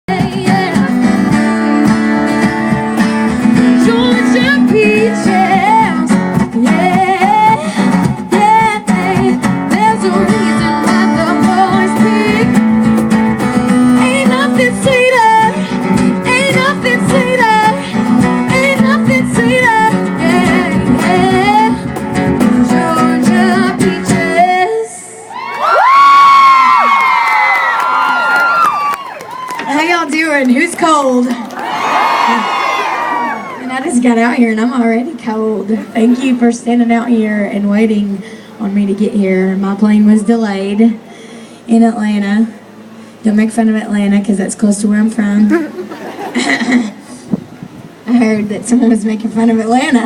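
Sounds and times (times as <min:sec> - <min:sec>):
strummed acoustic guitar: 0:00.1 - 0:24.6
person singing: 0:03.6 - 0:12.6, 0:14.0 - 0:25.2.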